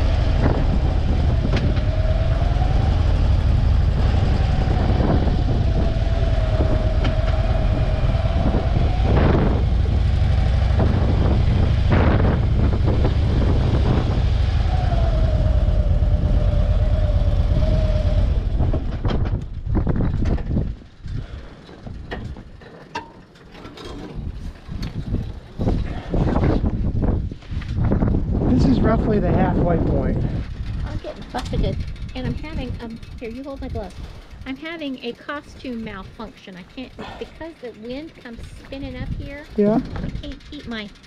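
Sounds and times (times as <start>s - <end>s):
wavering whine: 0.0s - 20.1s
motorcycle engine running: 0.0s - 22.6s, 24.2s - 41.0s
wind buffeting microphone: 0.0s - 22.6s, 23.8s - 41.0s.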